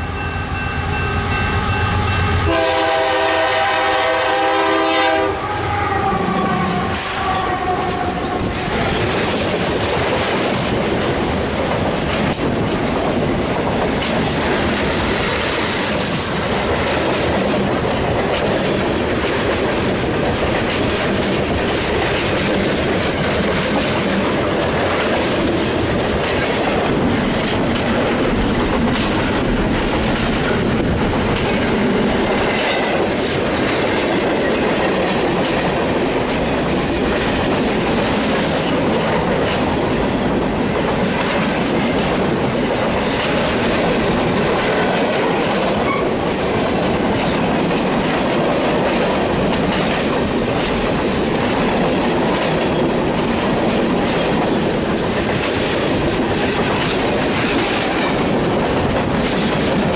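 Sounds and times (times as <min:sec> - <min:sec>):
freight train wheels rumbling: 0:00.0 - 0:59.9
clickety-clack over rail joints: 0:06.8 - 0:59.9.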